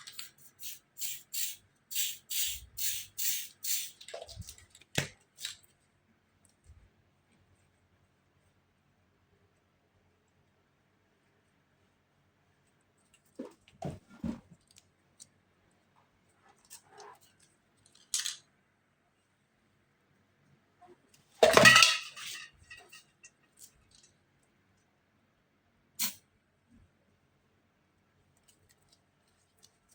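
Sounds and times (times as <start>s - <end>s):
short spray hiss: 0.6s - 4.0s.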